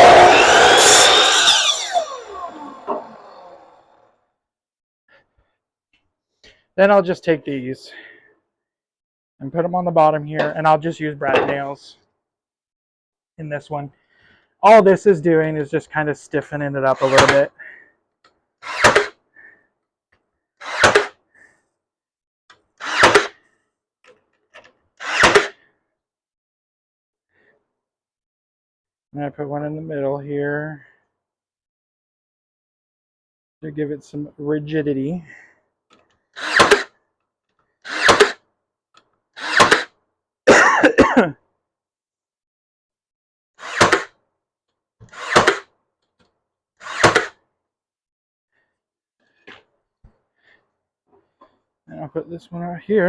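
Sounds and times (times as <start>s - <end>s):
nail gun firing: 17.0s - 17.4s, 18.7s - 19.1s, 20.7s - 21.2s, 22.8s - 23.4s, 25.1s - 25.6s, 36.4s - 36.9s, 37.9s - 38.4s, 39.4s - 39.9s, 43.6s - 44.1s, 45.1s - 45.7s, 46.8s - 47.4s.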